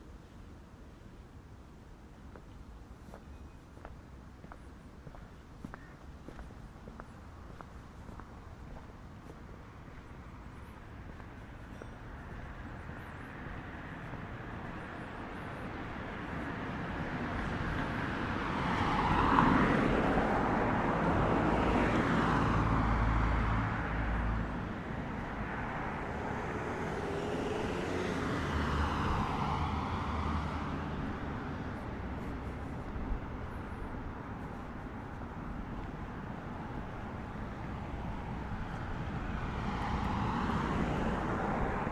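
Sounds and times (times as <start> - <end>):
motor vehicles passing: 15.9 - 34.1.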